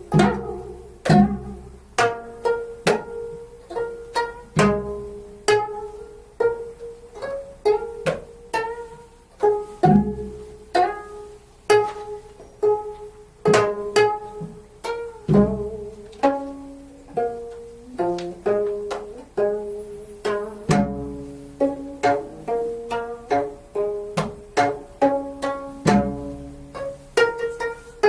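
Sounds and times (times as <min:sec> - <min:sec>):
plucked zither notes: 0:00.0 - 0:28.0.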